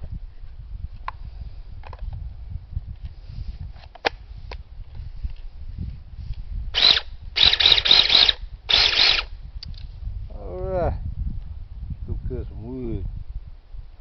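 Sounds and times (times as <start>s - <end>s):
mini chainsaw running: 6.8s - 9.3s.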